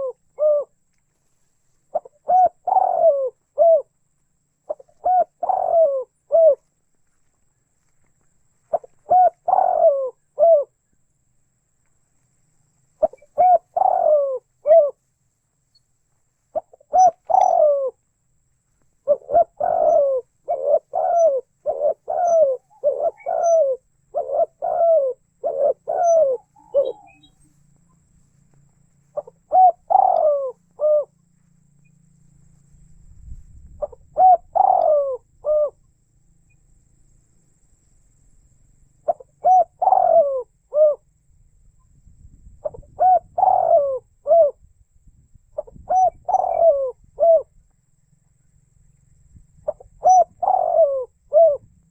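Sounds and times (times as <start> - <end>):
dove cooing: 0.0 - 0.8, 1.9 - 6.7, 8.7 - 10.9, 13.0 - 15.0, 16.5 - 18.0, 19.0 - 28.1, 29.1 - 31.4, 33.8 - 35.8, 39.0 - 41.1, 42.6 - 44.6, 45.6 - 47.6, 49.6 - 51.8.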